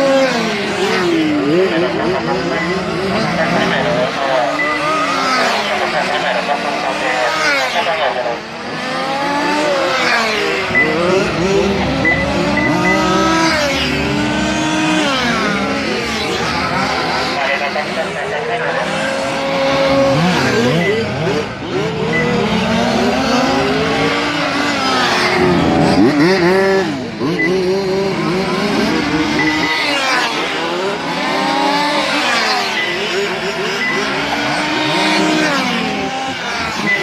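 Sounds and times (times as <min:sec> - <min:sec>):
radio-controlled car engines racing: 0:00.0 - 0:37.0.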